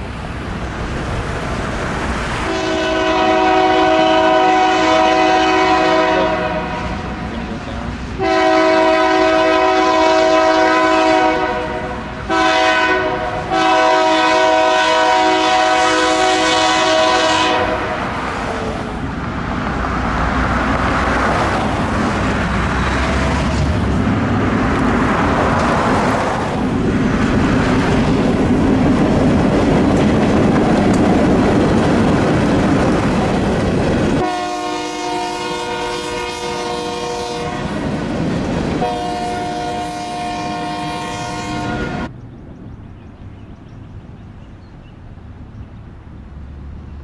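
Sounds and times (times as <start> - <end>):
freight train rumbling and clattering: 0.0 - 47.0
locomotive horn blasts: 2.5 - 18.2, 34.2 - 37.9, 38.8 - 42.1.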